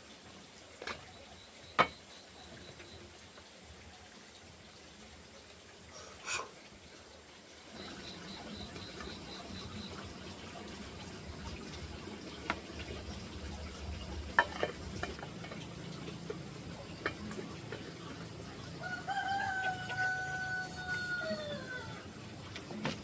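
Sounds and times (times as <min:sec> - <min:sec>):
rooster crowing: 0:18.8 - 0:22.1.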